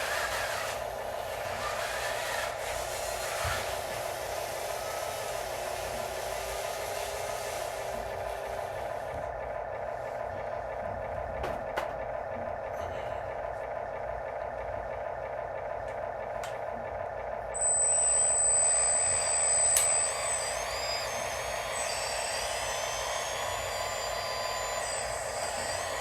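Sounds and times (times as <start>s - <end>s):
high-pitched whine: 17.3s - 26.0s
small electric motors whirring: 17.6s - 26.0s.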